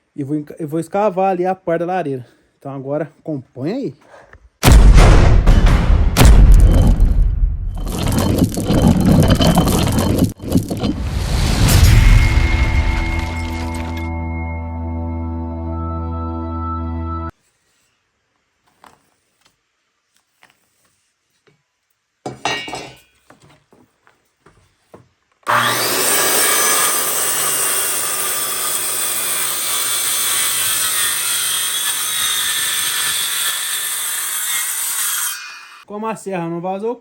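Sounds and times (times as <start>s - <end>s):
power saw cutting wood: 25.5s - 35.8s.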